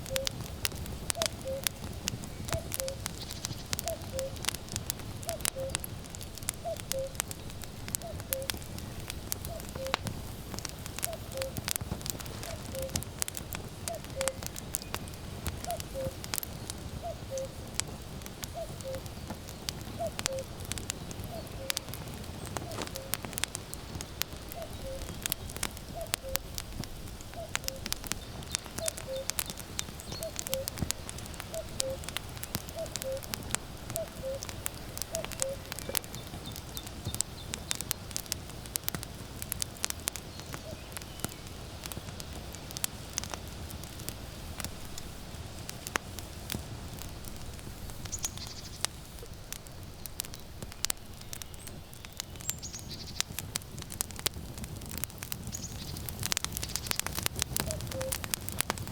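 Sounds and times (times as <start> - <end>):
cuckoo calling: 0.0 - 0.4, 1.1 - 1.8, 2.4 - 4.5, 5.2 - 5.9, 6.6 - 7.3, 7.9 - 8.6, 9.4 - 10.1, 11.0 - 11.6, 12.4 - 13.0, 13.8 - 16.2, 17.0 - 17.6, 18.5 - 19.2, 19.8 - 23.4, 24.4 - 26.5, 27.3 - 37.2, 57.6 - 58.3
firewood crackling and popping: 0.0 - 58.9.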